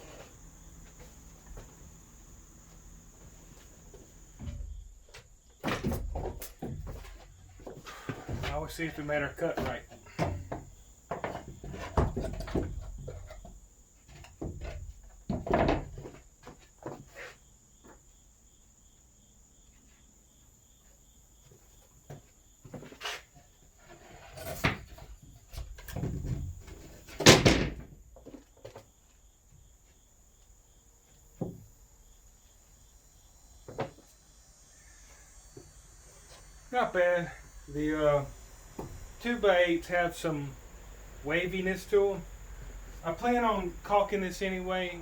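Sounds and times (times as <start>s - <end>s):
plywood knocking on wooden framing: 4.4s - 8.6s, 9.6s - 13.5s, 14.1s - 17.0s.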